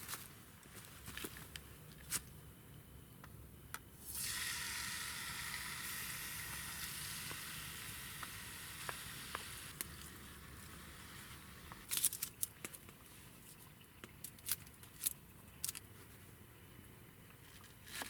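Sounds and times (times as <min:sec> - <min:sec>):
sizzling in a cooking pot: 0:04.0 - 0:11.8.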